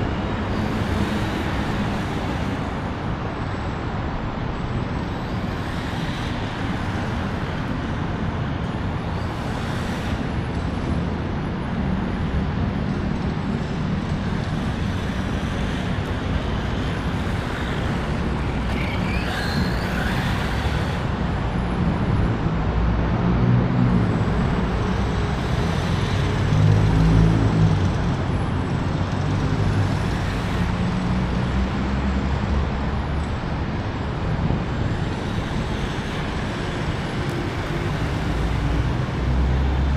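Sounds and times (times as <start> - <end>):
heavy vehicle engine: 0.0 - 39.9
road traffic rumble: 0.0 - 39.9.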